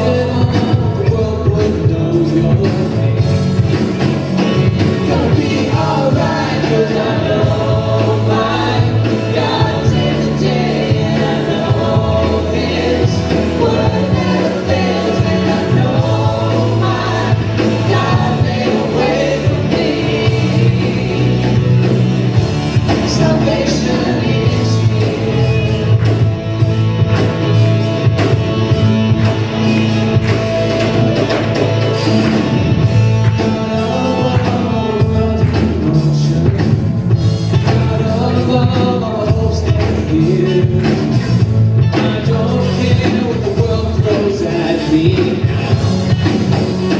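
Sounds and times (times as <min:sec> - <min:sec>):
bass line: 0:00.0 - 0:46.9
worship band playing: 0:00.0 - 0:46.9
person singing: 0:33.4 - 0:36.9.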